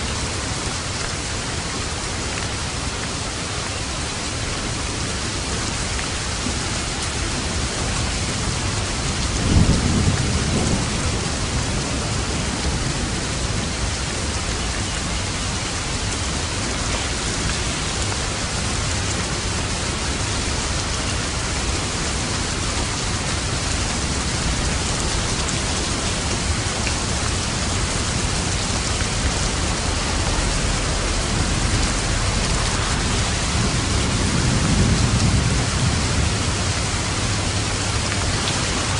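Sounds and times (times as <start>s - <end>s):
heavy rain: 0.0s - 38.9s
thunder rumbling: 7.4s - 14.4s, 19.5s - 38.9s.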